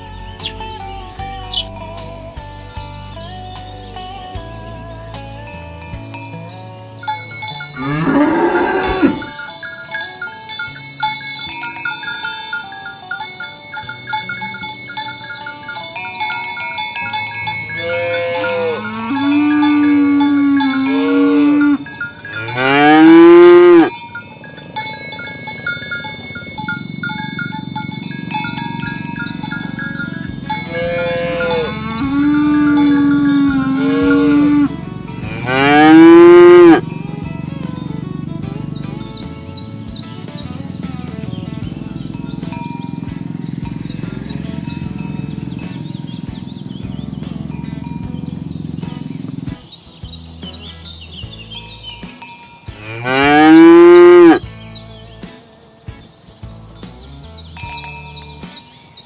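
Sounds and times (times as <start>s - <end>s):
cowbells ringing: 0.0s - 59.0s
cattle mooing: 7.8s - 9.4s, 17.7s - 27.4s, 28.0s - 36.9s, 52.8s - 54.4s.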